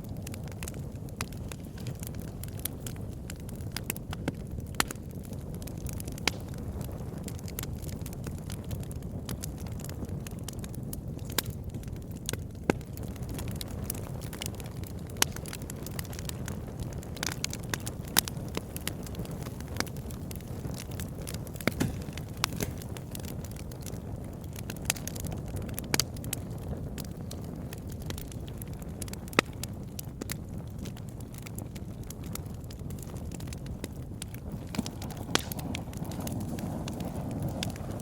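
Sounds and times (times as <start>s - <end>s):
burning wood crackling and popping: 0.0s - 38.0s
low rumble of flames: 0.0s - 38.0s.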